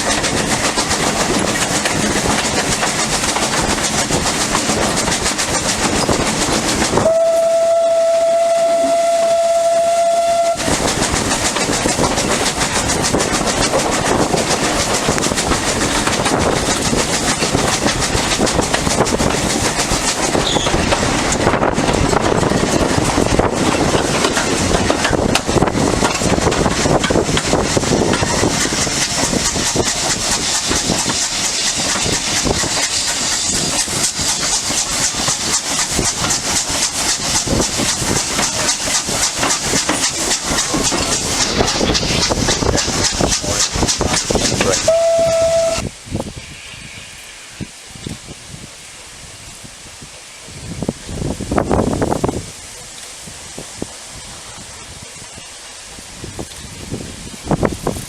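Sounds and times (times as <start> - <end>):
train running along tracks: 0.0 - 58.0
steam locomotive whistle: 7.0 - 10.8, 44.7 - 47.5.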